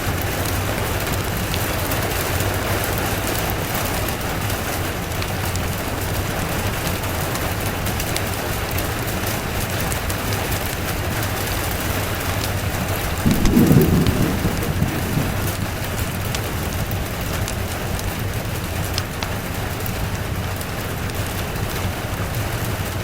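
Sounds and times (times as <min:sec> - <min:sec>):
steady rain: 0:00.0 - 0:23.0
thunder rumbling: 0:12.6 - 0:19.0.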